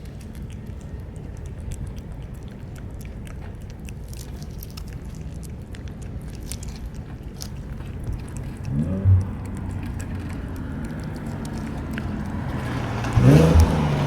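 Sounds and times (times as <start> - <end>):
cats chewing food: 0.0 - 14.0
steady low rumble: 0.0 - 14.0.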